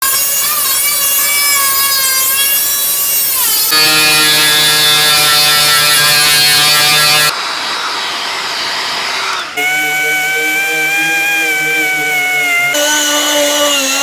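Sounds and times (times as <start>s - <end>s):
power tool whine wavering: 0.1s - 14.0s
steady machine whine: 3.6s - 14.0s.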